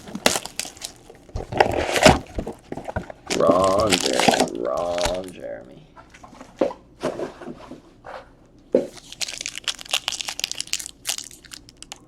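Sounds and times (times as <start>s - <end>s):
foil wrapper crinkling and tearing: 0.0s - 5.4s, 8.9s - 12.0s.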